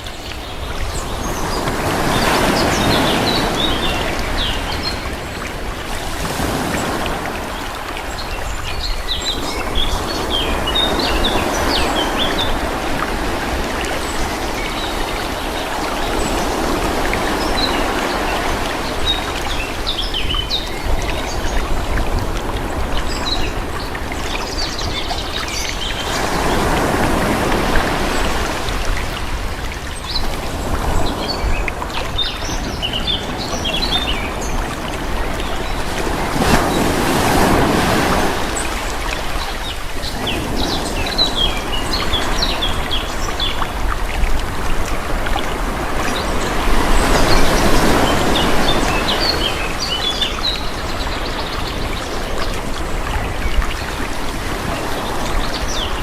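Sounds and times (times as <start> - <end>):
small birds chirping: 0.0 - 5.5, 31.0 - 37.6
calm sea waves washing: 0.0 - 56.0.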